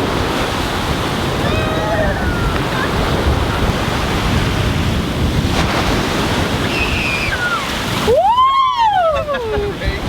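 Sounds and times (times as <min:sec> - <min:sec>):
surf breaking on beach: 0:00.0 - 0:10.0
wind buffeting microphone: 0:00.0 - 0:10.0.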